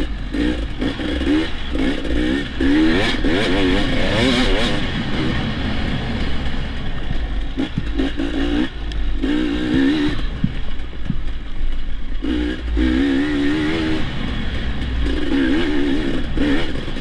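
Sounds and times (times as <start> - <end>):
dirt bike engine revving: 0.0 - 11.4, 12.1 - 17.0.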